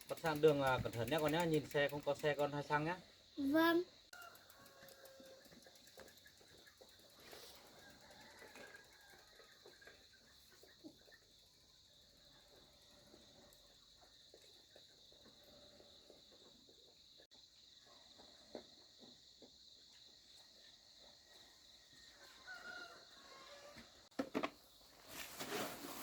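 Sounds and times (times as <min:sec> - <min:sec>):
high-pitched insect chorus: 0:00.0 - 0:03.6.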